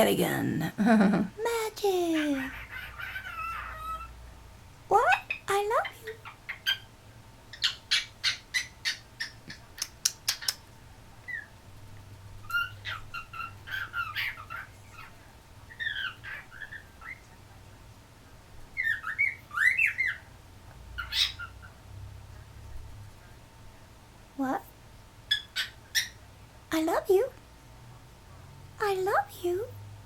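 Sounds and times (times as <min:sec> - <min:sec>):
cockatiel squawk: 0:02.4 - 0:04.1, 0:12.4 - 0:15.1, 0:21.0 - 0:21.7.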